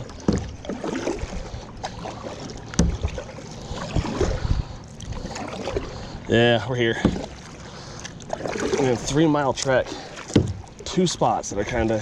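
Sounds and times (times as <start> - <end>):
water splashing around kayak: 0.0 - 12.0
knocks on kayak: 10.3 - 10.6.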